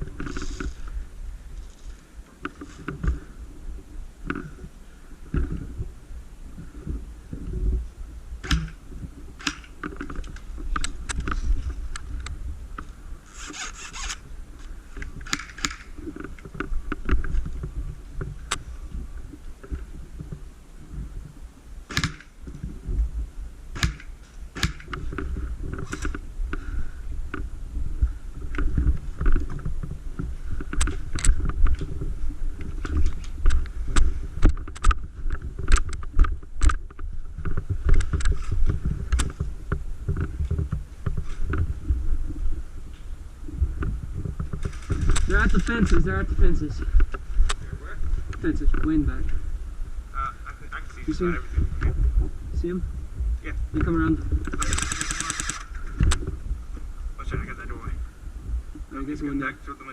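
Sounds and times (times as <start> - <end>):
microphone handling noise: 0.0 - 59.8
wind rumble on microphone: 0.0 - 59.9
sharp clicks and knocks: 8.4 - 8.8, 32.6 - 41.7, 53.8 - 56.4.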